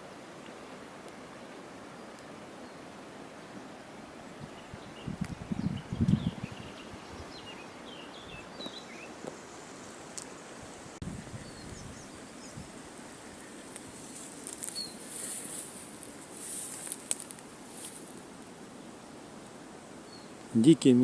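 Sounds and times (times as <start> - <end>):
faint steady hiss: 0.0 - 21.0
small birds chirping: 4.3 - 10.0, 11.1 - 19.0, 20.0 - 20.8.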